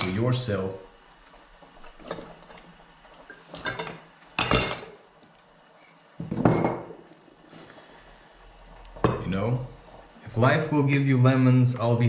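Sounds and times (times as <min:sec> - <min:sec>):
dishes and cutlery clattering: 0:03.5 - 0:05.0.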